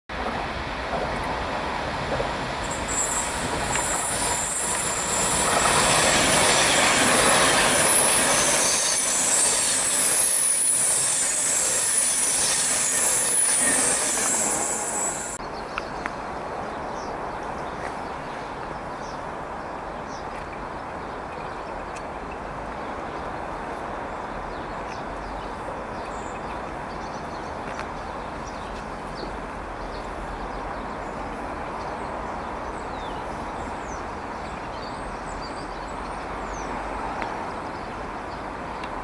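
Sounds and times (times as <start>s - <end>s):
train rumble: 0.1s - 15.4s
train wheels rushing on rail: 0.1s - 15.4s
high-pitched squeal: 2.6s - 15.4s.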